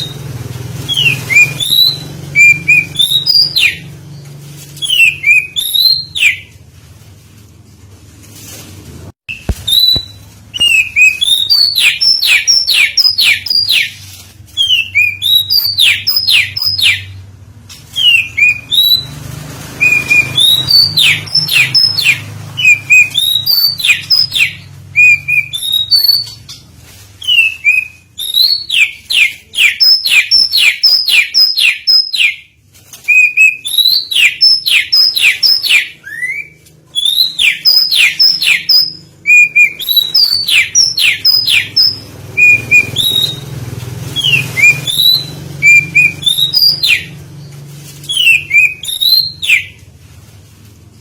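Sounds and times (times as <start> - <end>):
bird singing whistled phrases: 0.9 - 3.9, 4.8 - 6.5, 9.3 - 14.0, 14.6 - 17.2, 18.0 - 19.1, 19.8 - 26.4, 27.2 - 32.4, 33.1 - 43.5, 44.2 - 47.1, 48.1 - 49.8.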